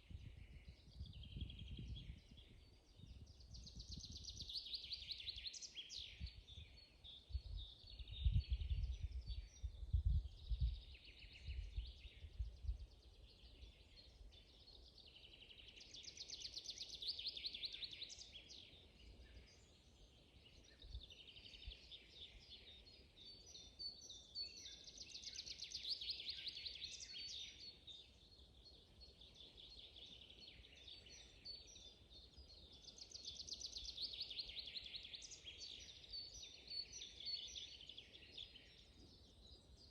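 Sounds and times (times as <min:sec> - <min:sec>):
bird chirps: 0:00.1 - 0:39.9.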